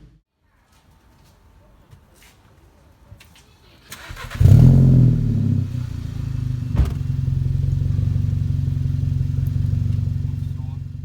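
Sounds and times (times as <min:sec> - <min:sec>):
car engine starting and idling: 0:03.6 - 0:11.0.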